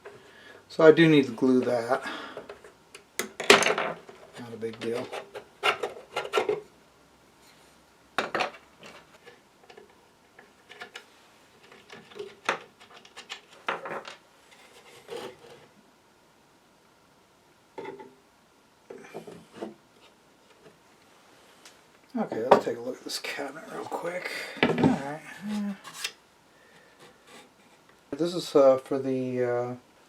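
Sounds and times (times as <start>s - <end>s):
hands handling wooden radio parts: 1.4s - 6.7s, 8.2s - 15.8s, 18.9s - 22.8s, 23.4s - 28.1s.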